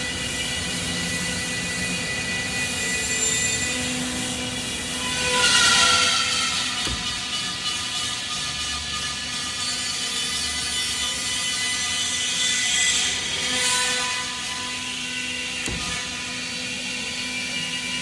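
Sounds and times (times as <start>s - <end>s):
factory machinery humming: 0.0s - 10.2s.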